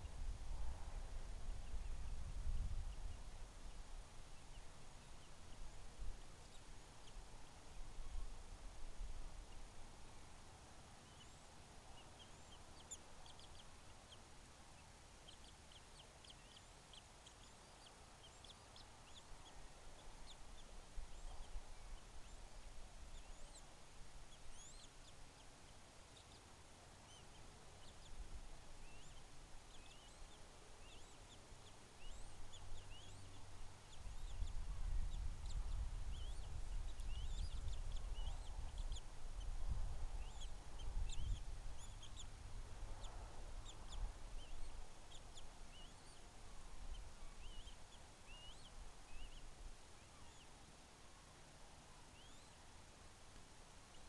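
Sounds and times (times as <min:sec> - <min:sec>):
high bird chirps: 0:32.0 - 0:39.1, 0:40.1 - 0:42.4, 0:47.0 - 0:50.5, 0:52.1 - 0:52.6.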